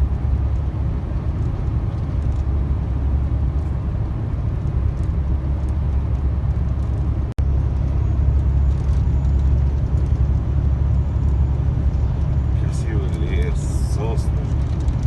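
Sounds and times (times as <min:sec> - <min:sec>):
truck engine and tyres droning: 0:00.0 - 0:15.0.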